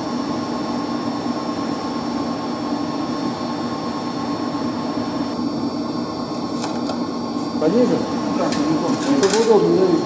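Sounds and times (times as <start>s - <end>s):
machinery low hum: 0.0s - 10.0s.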